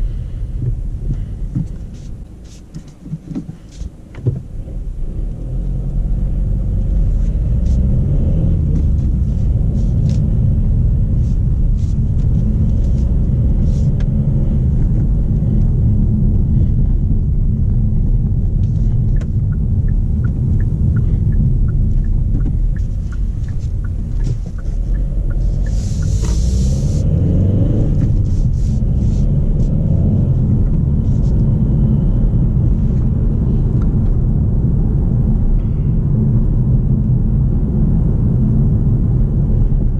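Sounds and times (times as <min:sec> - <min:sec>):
diesel engine and road rumble: 0:00.0 - 0:39.9
light regular ticks: 0:18.6 - 0:27.0.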